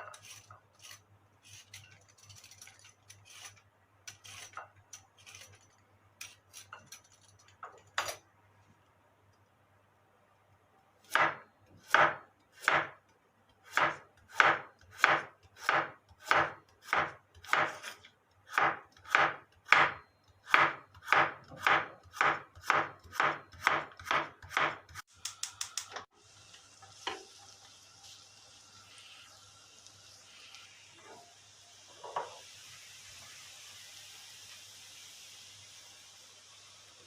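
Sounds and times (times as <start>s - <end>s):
knife chopping on cutting board: 11.1s - 13.0s, 13.7s - 25.0s
steady hiss: 25.2s - 37.0s.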